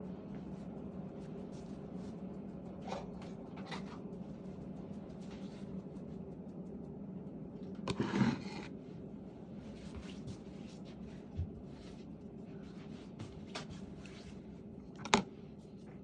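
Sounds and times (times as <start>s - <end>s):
steady low hum: 0.0s - 16.0s
rustling scrape: 7.9s - 8.8s.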